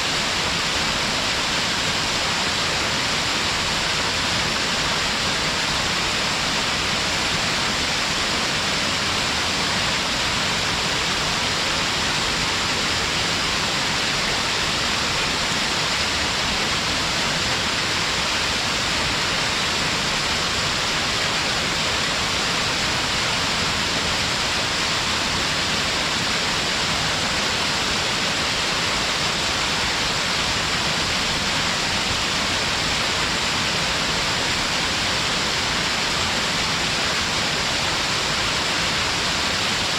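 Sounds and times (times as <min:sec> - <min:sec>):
waterfall pouring over rock: 0:00.0 - 0:39.9.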